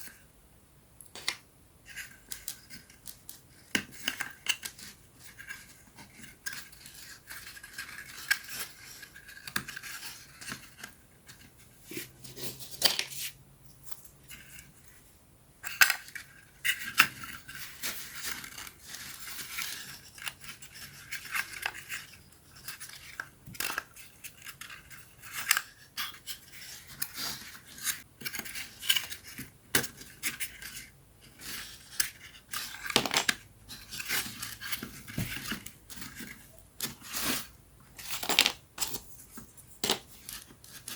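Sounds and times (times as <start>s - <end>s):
wooden puzzle pieces clicking: 32.1s - 33.4s, 38.0s - 39.0s, 39.8s - 40.9s.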